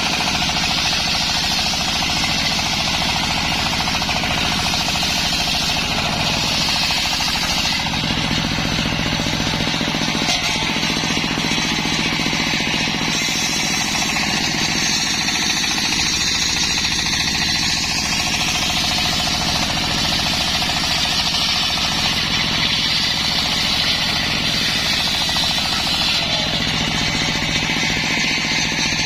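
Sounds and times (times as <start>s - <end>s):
circular saw cutting wood: 0.0s - 29.0s.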